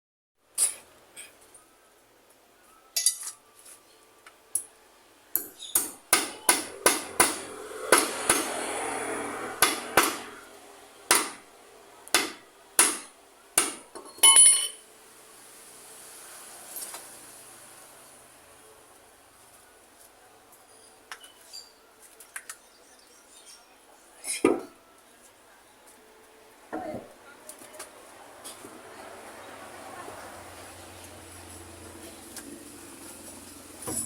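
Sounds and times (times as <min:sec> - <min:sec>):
hammer strikes: 0:05.3 - 0:08.7, 0:09.6 - 0:10.4, 0:11.1 - 0:11.5, 0:12.1 - 0:14.8.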